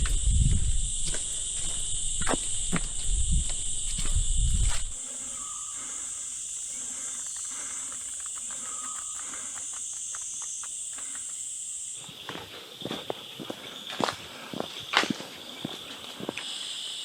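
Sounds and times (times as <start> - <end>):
lower insect buzzing: 0.0 - 12.0
high-pitched insect drone: 0.0 - 17.0.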